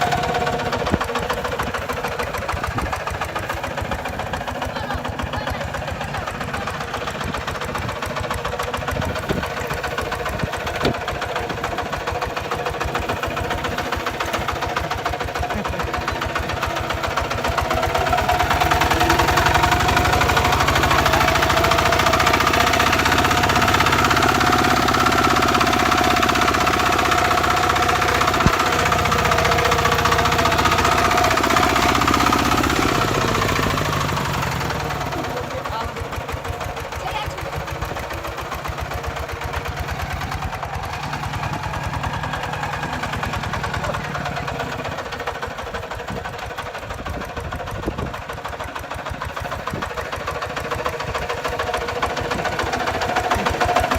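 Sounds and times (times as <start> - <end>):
diesel engine chugging: 0.0 - 53.9.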